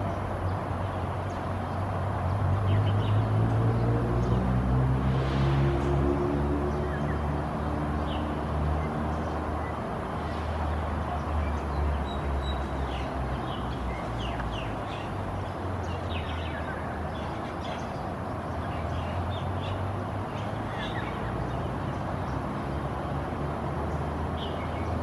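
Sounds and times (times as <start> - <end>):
small birds chirping: 6.7 - 25.0.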